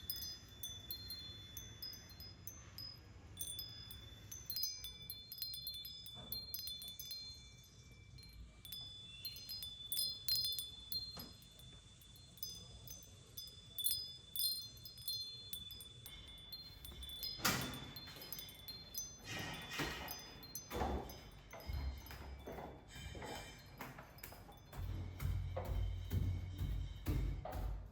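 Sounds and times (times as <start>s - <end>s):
high-pitched chime tinkles: 0.0s - 27.3s
knocks: 20.7s - 27.9s.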